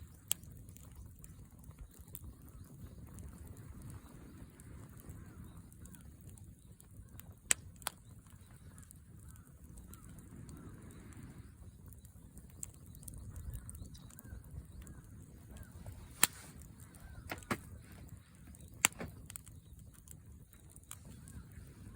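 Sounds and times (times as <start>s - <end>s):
fire popping: 0.0s - 21.9s
wood fire burning: 0.0s - 21.9s
faint bird-like calls: 3.9s - 7.3s, 7.9s - 19.8s, 20.5s - 21.9s.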